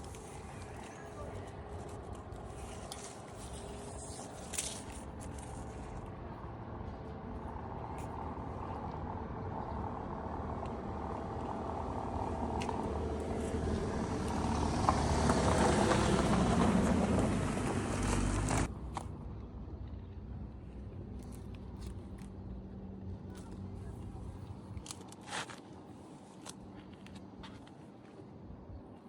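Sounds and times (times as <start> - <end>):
vehicle engine running: 4.9 - 24.5.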